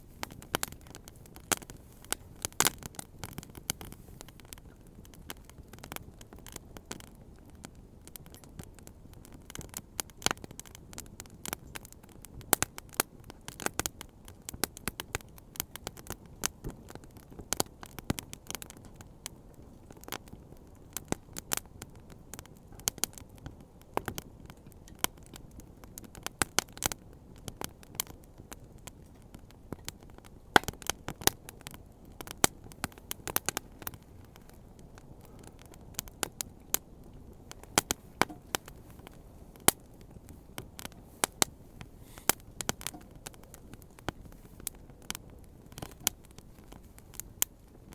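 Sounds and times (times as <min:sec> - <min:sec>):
bonfire crackling and popping: 0:00.0 - 0:47.9
low steady rumble: 0:31.8 - 0:47.9.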